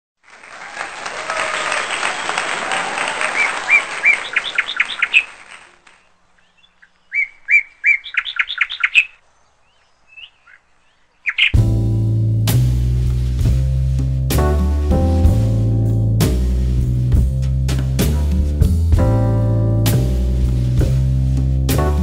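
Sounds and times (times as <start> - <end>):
bird chirping: 3.3 - 11.6.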